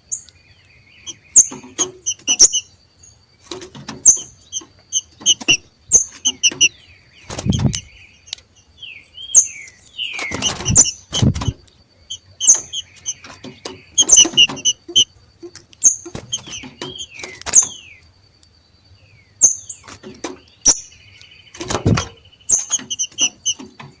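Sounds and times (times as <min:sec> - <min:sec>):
bird chirps and whistles: 0:01.0 - 0:02.7, 0:04.1 - 0:07.9, 0:09.2 - 0:13.3, 0:13.9 - 0:15.1, 0:16.2 - 0:17.8, 0:21.8 - 0:23.7.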